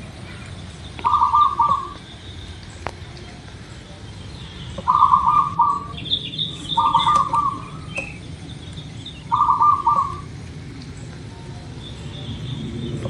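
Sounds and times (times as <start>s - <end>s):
small bird chirping: 0.2s - 11.2s
dove cooing: 1.0s - 2.1s, 4.8s - 8.2s, 9.2s - 10.4s.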